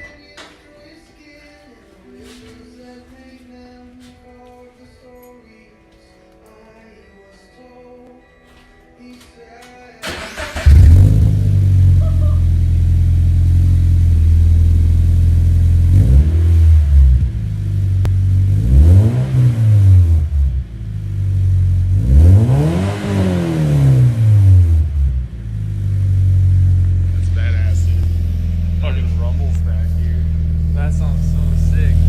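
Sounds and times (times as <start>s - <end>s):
car engine revving: 10.0s - 32.0s
car engine starting and idling: 10.0s - 32.0s.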